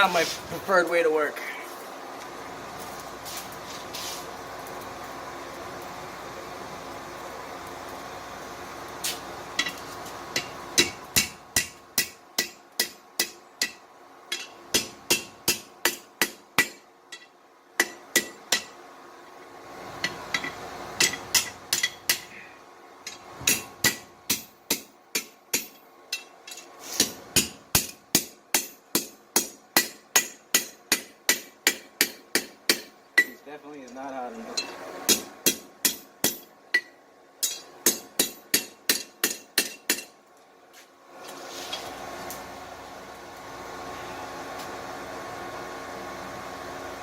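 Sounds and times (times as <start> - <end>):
hammer striking steel on anvil: 10.4 - 18.8, 20.0 - 22.3, 23.1 - 33.4, 34.5 - 40.1.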